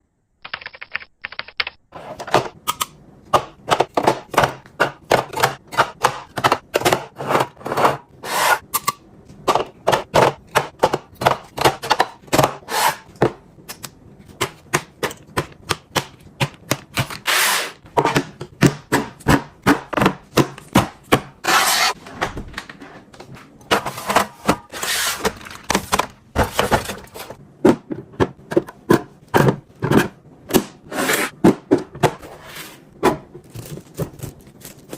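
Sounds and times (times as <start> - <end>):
packaging rustling: 33.4 - 34.9.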